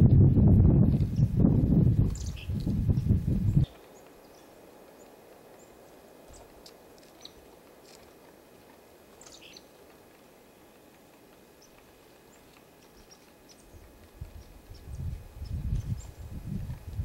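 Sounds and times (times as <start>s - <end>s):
faint bird chirps: 9.2s - 9.8s.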